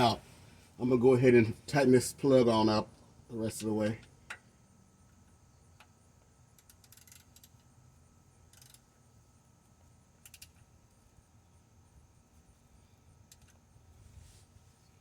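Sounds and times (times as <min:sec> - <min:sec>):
socket ratchet clicking: 0:06.6 - 0:07.6, 0:08.5 - 0:08.8, 0:10.2 - 0:10.6.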